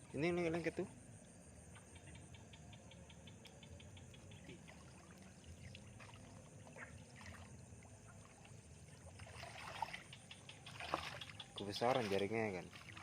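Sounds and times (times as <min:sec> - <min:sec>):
water trickling and dripping: 0:00.0 - 0:13.0
soft ticks: 0:01.7 - 0:04.6.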